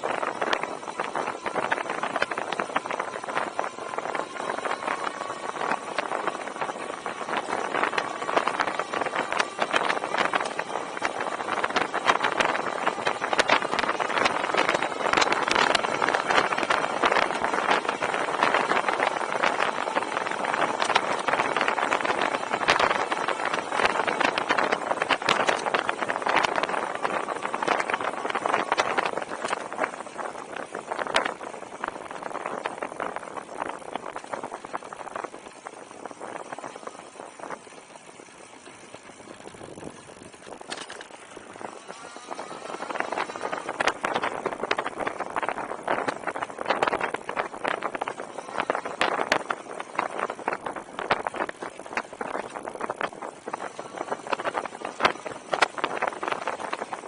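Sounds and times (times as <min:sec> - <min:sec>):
bike rattling and clicking: 0:00.0 - 0:57.0
wind buffeting microphone: 0:00.0 - 0:57.0.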